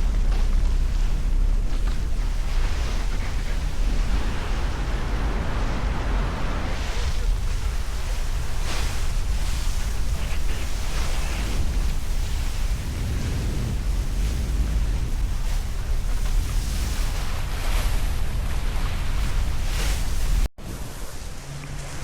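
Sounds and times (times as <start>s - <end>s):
water rushing along boat hulls: 0.0s - 22.0s
wind buffeting microphone: 0.0s - 22.0s.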